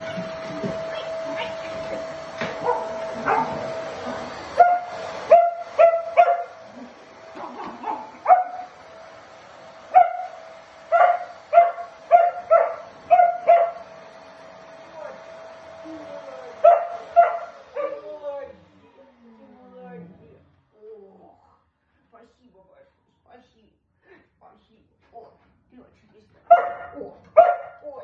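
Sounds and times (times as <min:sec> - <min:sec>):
vacuum cleaner whine: 0:00.0 - 0:20.8
dog barking in yips: 0:02.6 - 0:03.6, 0:04.6 - 0:06.6, 0:07.4 - 0:08.7, 0:10.0 - 0:10.4, 0:11.0 - 0:13.8, 0:16.6 - 0:18.0, 0:26.5 - 0:27.8.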